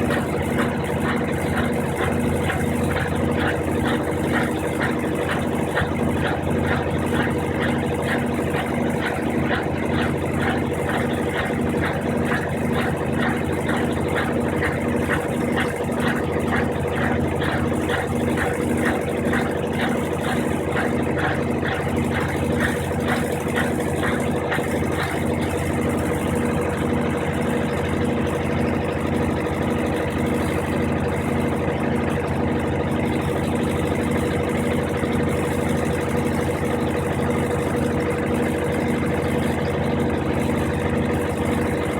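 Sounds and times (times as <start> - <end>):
rhythmic swishing: 0.0 - 26.6
washing machine running: 0.0 - 41.9.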